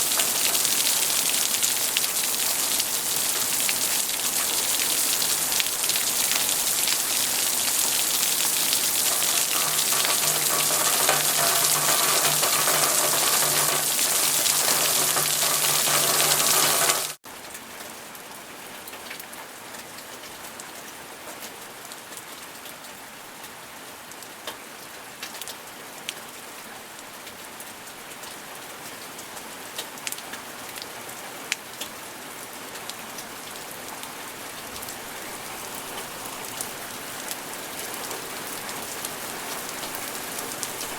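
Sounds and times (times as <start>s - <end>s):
heavy rain: 0.0s - 17.2s, 33.1s - 40.9s
raindrops ticking: 0.0s - 17.2s.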